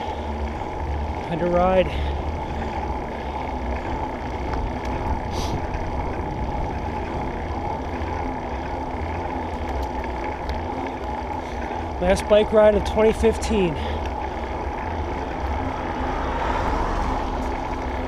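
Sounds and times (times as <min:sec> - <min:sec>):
bike road noise: 0:00.0 - 0:18.0
wind rumble on microphone: 0:04.4 - 0:07.9.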